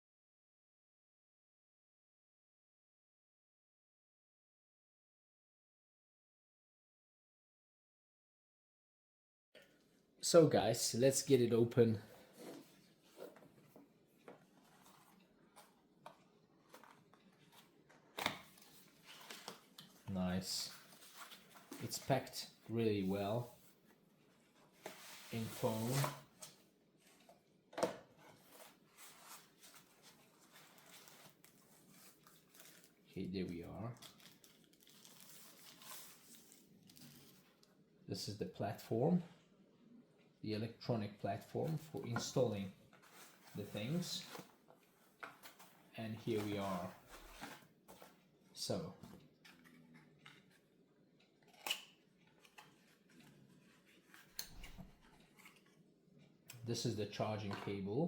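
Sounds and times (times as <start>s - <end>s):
packaging rustling: 28.4s - 33.0s, 34.0s - 37.6s.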